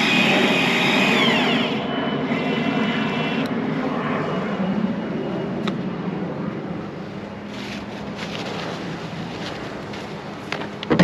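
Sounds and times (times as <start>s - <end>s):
caulking gun motor running: 0.0s - 3.5s.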